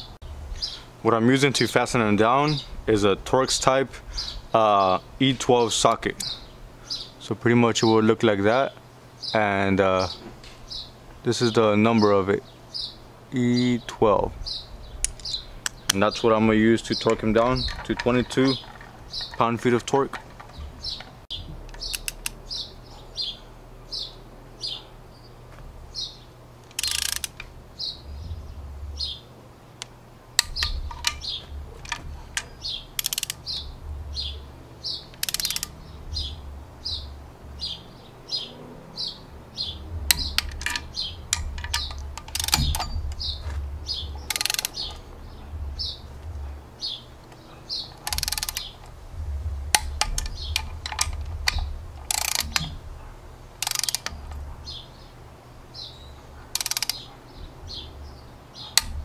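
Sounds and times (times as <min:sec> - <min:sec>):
small bird chirping: 0:12.0 - 0:13.8, 0:14.4 - 0:19.6, 0:20.2 - 0:29.3, 0:30.4 - 0:59.0
ratchet wrench clicking: 0:21.7 - 0:22.4, 0:26.7 - 0:27.5, 0:30.4 - 0:33.6, 0:35.1 - 0:35.8, 0:40.1 - 0:43.3, 0:44.3 - 0:45.0, 0:48.0 - 0:48.8, 0:49.7 - 0:52.8, 0:53.6 - 0:54.4, 0:56.5 - 0:57.1.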